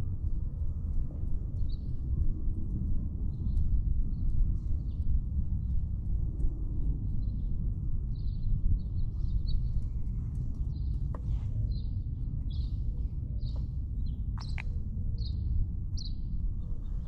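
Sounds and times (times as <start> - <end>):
low microphone rumble: 0.0 - 17.0
small birds chirping: 8.2 - 17.0.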